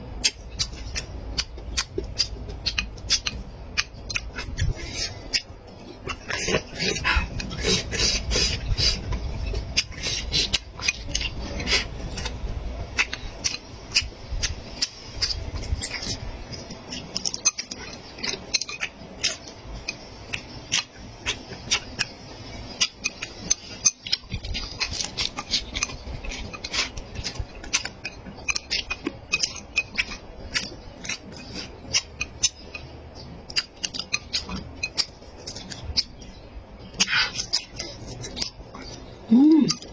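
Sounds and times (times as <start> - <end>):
chewing smacks: 0.2 - 36.3, 36.9 - 39.9.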